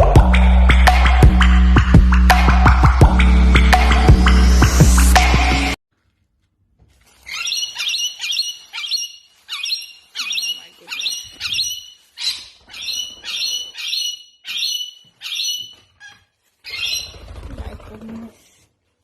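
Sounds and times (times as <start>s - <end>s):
bird chirping: 7.2s - 17.7s.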